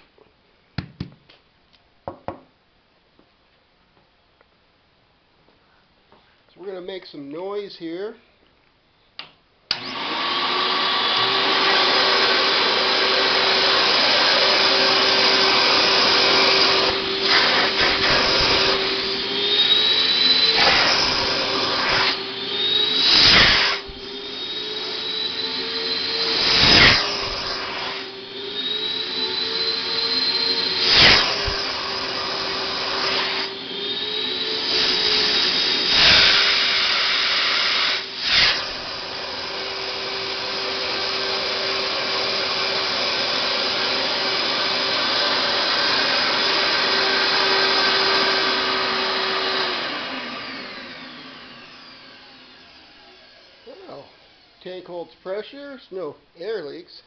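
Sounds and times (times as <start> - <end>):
vacuum motors running: 9.7 - 54.6.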